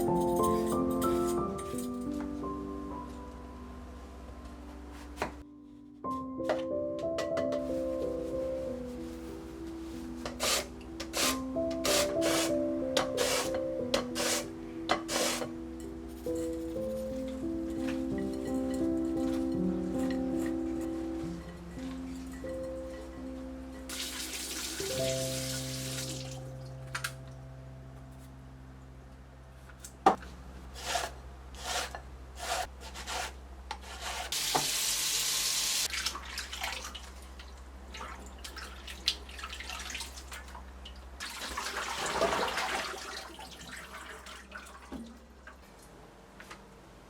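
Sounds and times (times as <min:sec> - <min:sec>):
soft background music: 0:00.0 - 0:30.2
kitchen tap running: 0:23.9 - 0:26.2.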